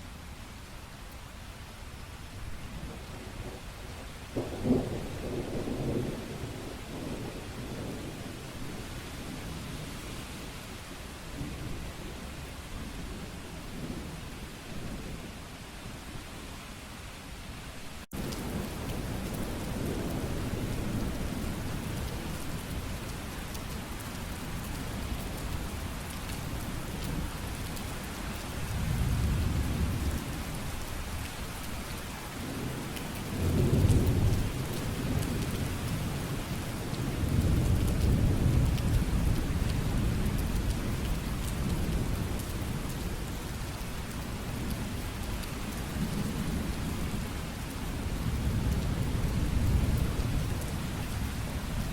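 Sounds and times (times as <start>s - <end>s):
heavy rain hiss: 0.0s - 51.9s
rolling thunder: 4.4s - 8.8s, 32.4s - 36.4s.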